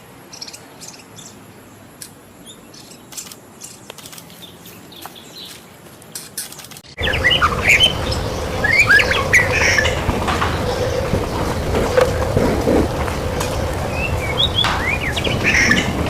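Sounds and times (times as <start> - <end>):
bird chirps and clicks: 0.3 - 1.4, 2.0 - 16.0
bird singing whistled notes: 6.9 - 16.0
steady low hum: 6.9 - 16.0.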